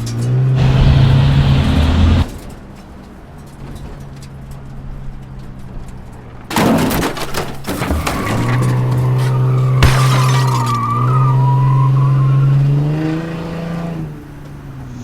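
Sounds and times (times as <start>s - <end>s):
car engine running: 0.5s - 2.5s
loud crash: 0.6s - 2.5s, 9.6s - 10.8s.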